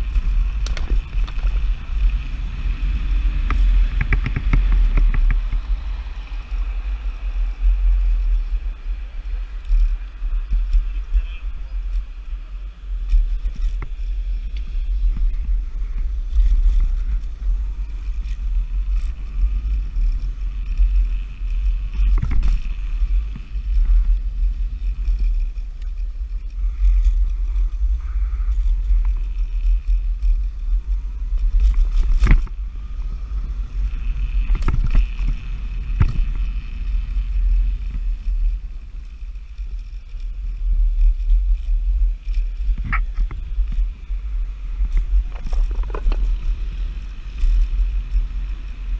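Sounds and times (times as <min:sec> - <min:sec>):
faint high motor whine: 0:00.0 - 0:48.9
wind and tyres rumbling: 0:00.0 - 0:48.9
scooter knocking over bumps: 0:03.5 - 0:05.6.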